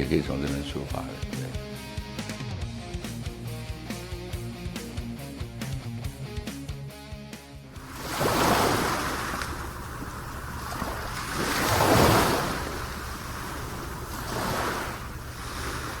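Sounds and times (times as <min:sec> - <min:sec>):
sea waves surging onto shore: 0:07.8 - 0:16.0.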